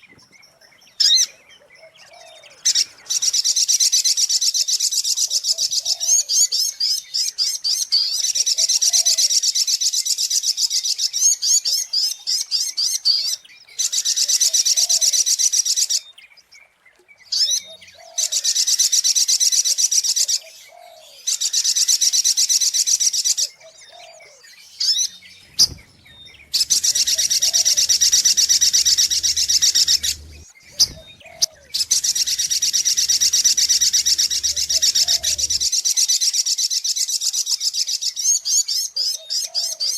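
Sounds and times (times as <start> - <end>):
faint low bird call: 23.6 - 35.7
bird twittering trills: 23.6 - 35.8.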